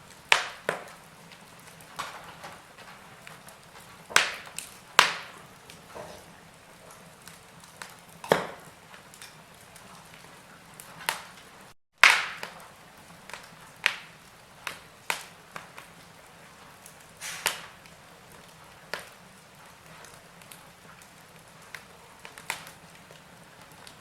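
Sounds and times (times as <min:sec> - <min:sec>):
wood fire crackling and popping: 0:00.0 - 0:24.0
faint hiss: 0:17.1 - 0:17.8.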